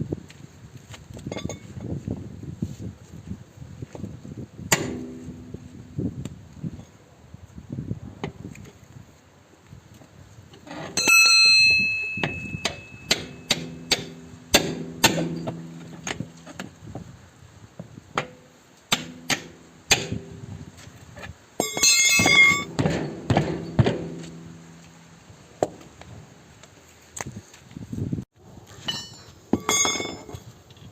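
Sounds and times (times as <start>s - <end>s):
hammer striking metal: 4.7s - 5.6s, 11.0s - 16.6s, 18.2s - 20.5s, 21.6s - 25.2s.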